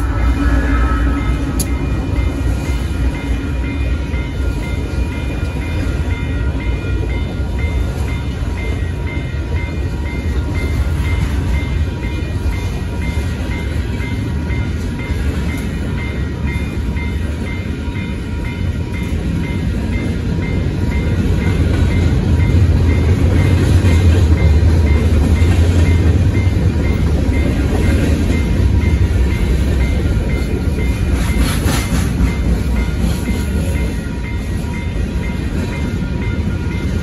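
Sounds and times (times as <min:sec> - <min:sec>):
train car clank: 0:00.0 - 0:09.8, 0:10.6 - 0:37.0
crossing warning bell ringing: 0:00.0 - 0:37.0
freight train wheels rumbling: 0:00.0 - 0:37.0.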